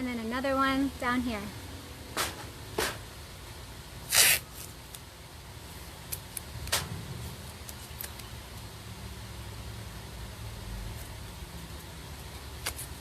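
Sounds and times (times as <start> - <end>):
scratchy rustle: 4.1 - 4.8.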